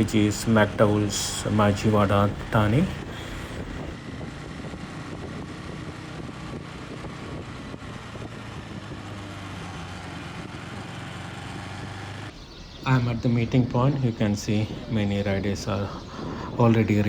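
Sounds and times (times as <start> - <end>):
motorcycle engine running: 0.0 - 17.0
road and wind noise: 0.0 - 17.0.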